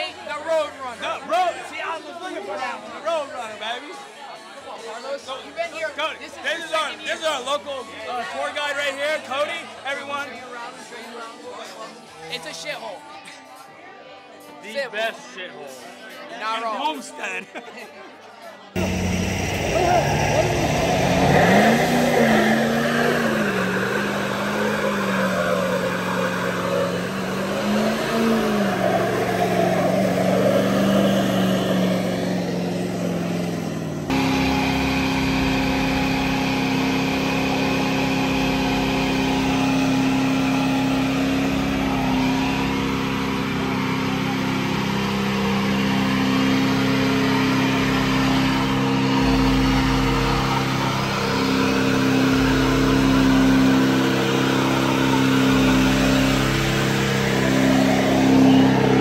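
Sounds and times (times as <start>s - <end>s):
truck engines running: 18.8s - 59.0s.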